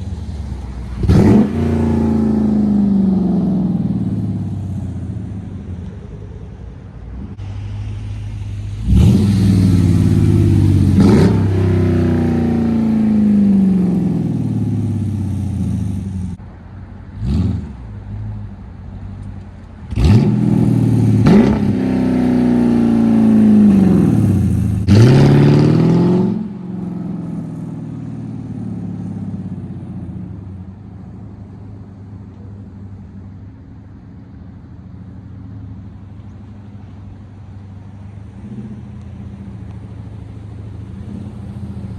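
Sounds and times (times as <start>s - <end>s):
car engine revving: 0.0s - 5.7s, 7.2s - 16.4s, 19.9s - 30.8s.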